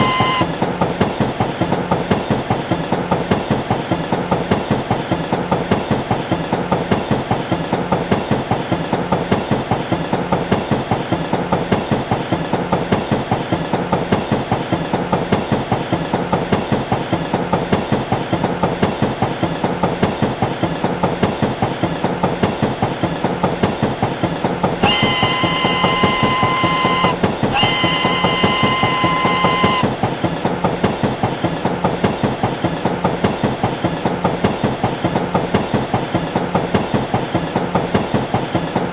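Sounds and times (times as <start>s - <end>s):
train horn blasts: 0.0s - 0.5s, 24.8s - 29.9s
train wheels clicking over rails: 0.0s - 38.9s.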